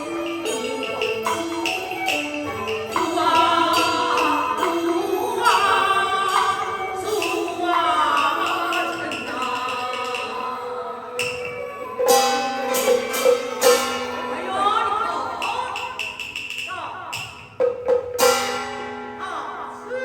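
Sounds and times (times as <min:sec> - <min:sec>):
sharp percussion strokes: 0:00.0 - 0:19.3
traditional ensemble playing: 0:00.0 - 0:20.0
person singing opera: 0:02.8 - 0:16.0.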